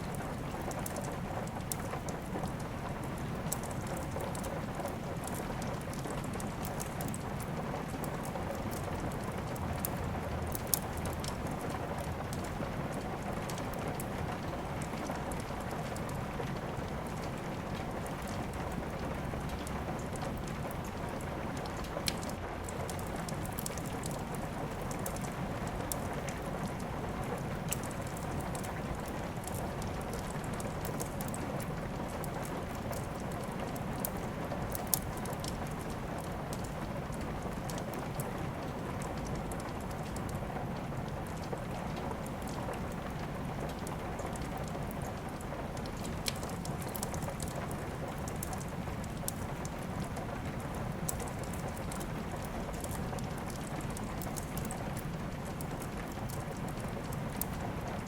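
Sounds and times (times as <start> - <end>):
rain falling: 0.0 - 58.0
wood fire crackling: 0.0 - 58.0.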